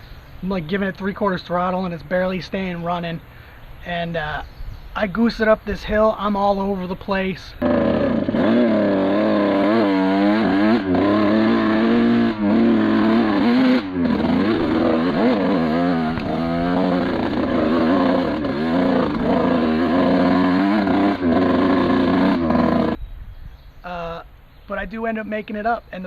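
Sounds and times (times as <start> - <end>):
two-stroke engine running hard: 7.6 - 23.0.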